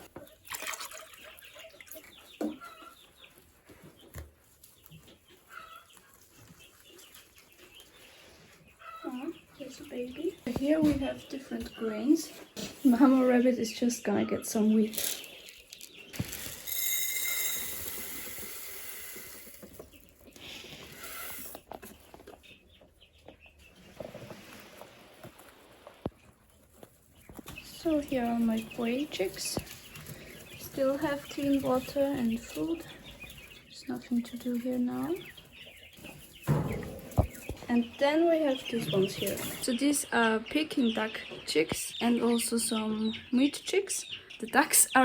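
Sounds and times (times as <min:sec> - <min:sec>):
chicks peeping: 0:00.0 - 0:45.0
grain pouring: 0:16.1 - 0:19.6
rustling and light knocks: 0:35.2 - 0:37.9.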